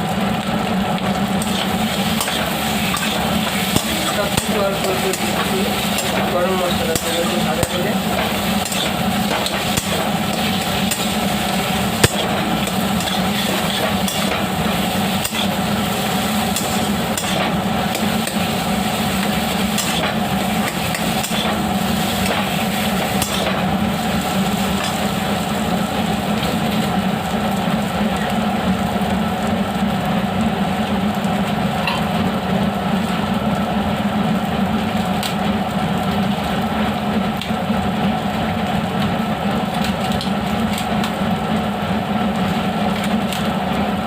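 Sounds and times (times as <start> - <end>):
steady low hum: 0.0 - 37.4
metal spatula scraping pan: 1.4 - 6.3, 7.0 - 11.2, 12.0 - 14.5.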